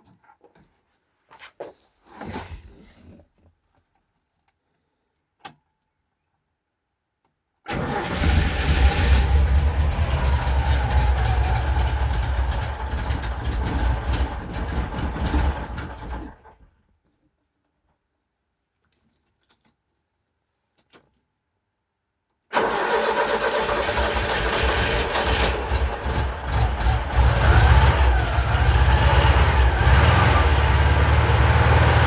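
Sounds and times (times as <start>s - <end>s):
car engine starting and running: 7.7s - 16.6s, 22.5s - 32.0s.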